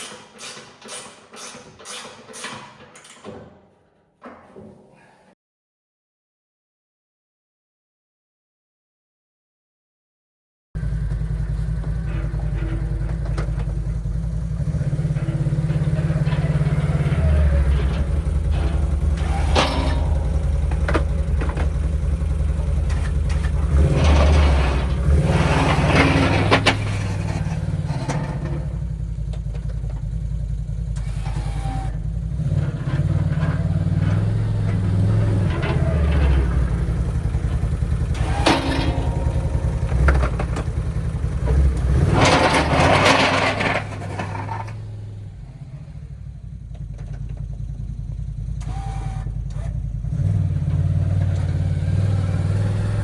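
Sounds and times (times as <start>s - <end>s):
atv engine running: 10.8s - 53.0s.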